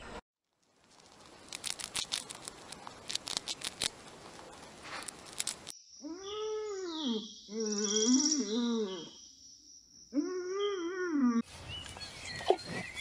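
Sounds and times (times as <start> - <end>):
rat nibbling and crunching food: 0.5 - 5.7.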